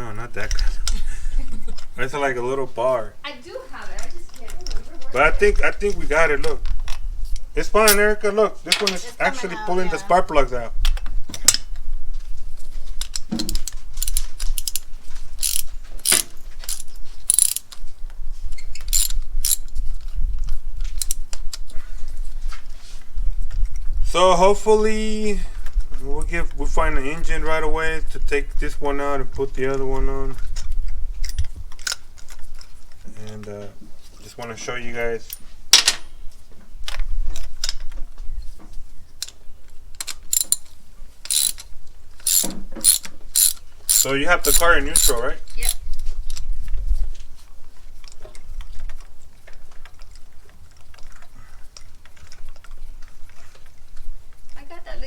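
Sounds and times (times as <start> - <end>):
socket ratchet clicking: 15.4 - 17.7, 18.9 - 19.6, 40.0 - 40.7, 41.3 - 45.8.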